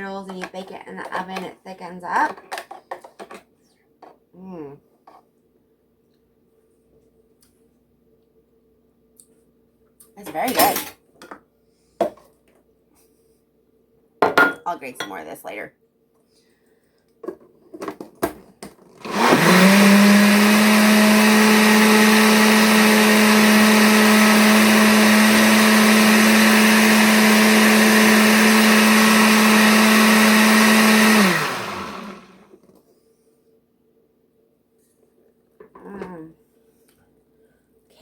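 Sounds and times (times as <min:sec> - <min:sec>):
kitchen appliance motor running: 0:19.0 - 0:32.5.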